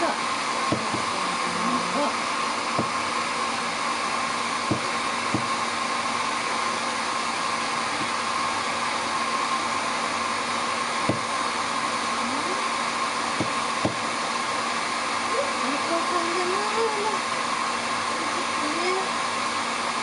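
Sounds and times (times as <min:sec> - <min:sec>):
hair dryer blowing: 0:00.0 - 0:20.0
light knocks: 0:04.7 - 0:05.6.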